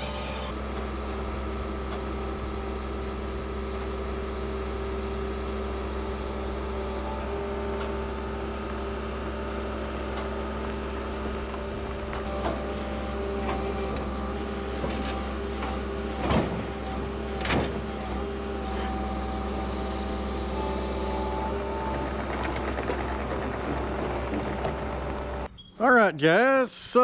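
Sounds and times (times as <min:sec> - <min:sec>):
machine humming: 0:00.0 - 0:09.0, 0:09.8 - 0:25.5
steady machine tones: 0:12.2 - 0:22.3.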